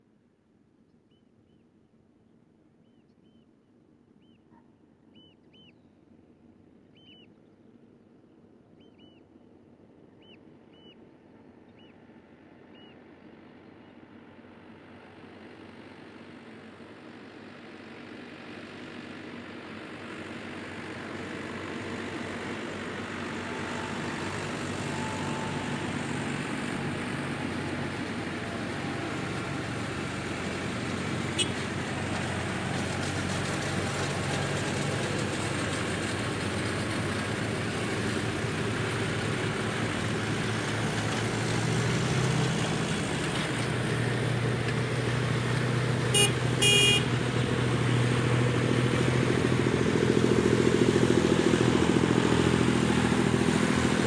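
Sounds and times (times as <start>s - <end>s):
tractor engines running: 12.1s - 54.0s
vehicle horn double toot: 31.3s - 31.6s, 46.1s - 47.2s.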